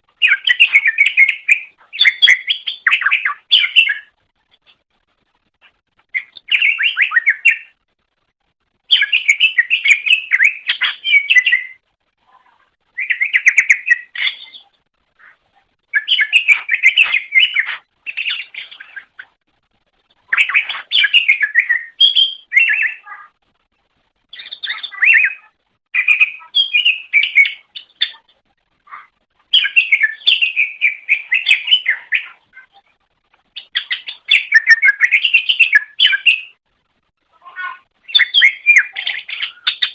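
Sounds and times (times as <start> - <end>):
bird singing rapid chattering notes: 0.2 - 4.2, 6.1 - 7.8, 8.9 - 11.8, 12.9 - 19.3, 20.2 - 23.1, 24.3 - 28.3, 28.9 - 32.8, 33.5 - 36.6, 37.4 - 39.9.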